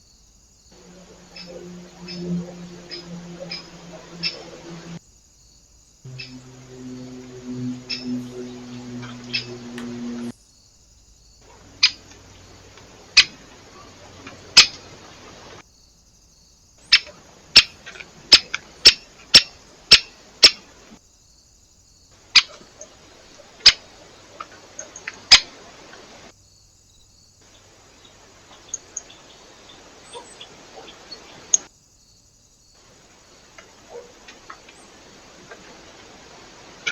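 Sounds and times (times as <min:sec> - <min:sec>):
low steady hum: 0:00.8 - 0:05.0, 0:06.1 - 0:10.3, 0:11.5 - 0:15.6.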